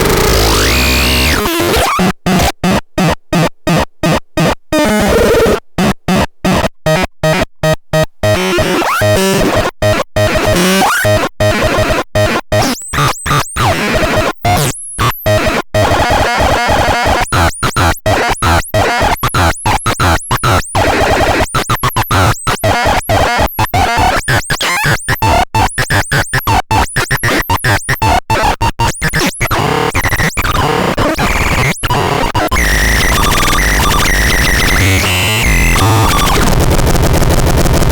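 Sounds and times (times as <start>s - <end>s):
harsh stuttering synthesizer: 0.0s - 2.8s, 15.2s - 37.9s
sliding high synthesizer tones: 31.2s - 37.8s.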